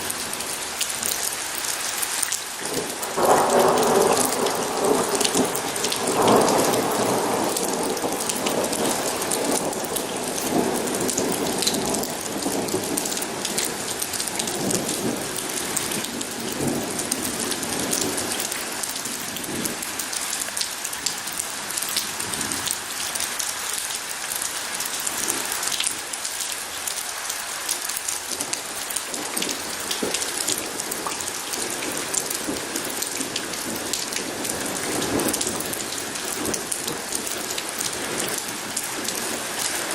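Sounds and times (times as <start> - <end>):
heavy rain pattering: 0.0 - 39.9
rolling thunder: 2.8 - 19.8.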